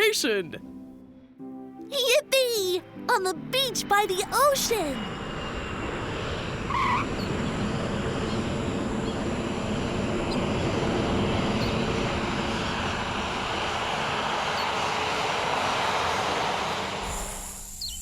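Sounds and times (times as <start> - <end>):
airliner engine drone: 4.2 - 18.0.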